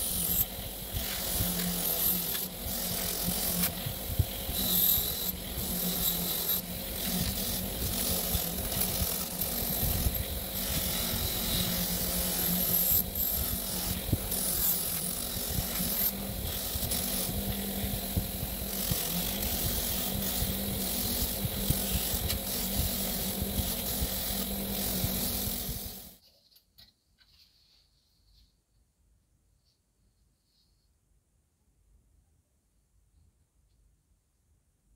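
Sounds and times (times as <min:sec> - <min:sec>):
power tool grinding metal: 0:00.0 - 0:26.2.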